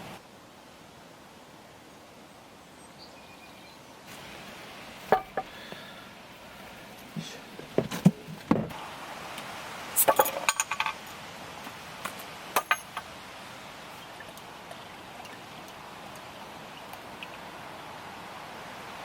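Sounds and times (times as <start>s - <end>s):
steady outdoor hiss: 0.0s - 19.0s
glass clinking: 10.0s - 11.0s, 12.6s - 13.1s.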